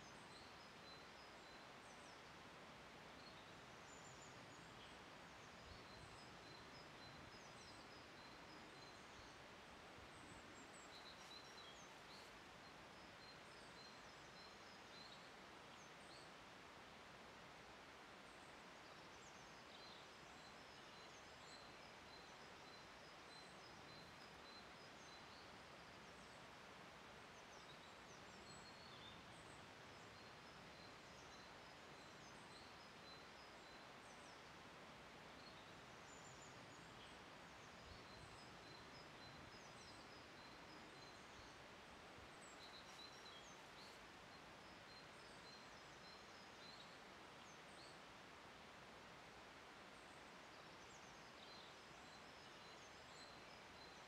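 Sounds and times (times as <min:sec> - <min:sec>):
low steady hiss: 0:00.0 - 0:54.0
small birds chirping: 0:35.3 - 0:48.0.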